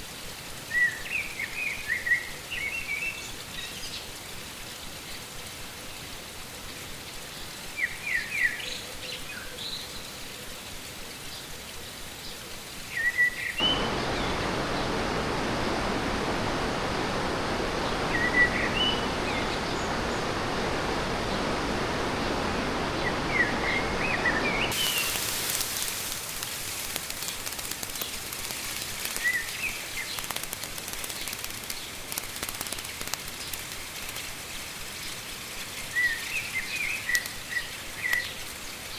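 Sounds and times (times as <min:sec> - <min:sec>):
fast-flowing stream rushing: 0:13.6 - 0:34.4
small birds chirping: 0:22.5 - 0:38.9.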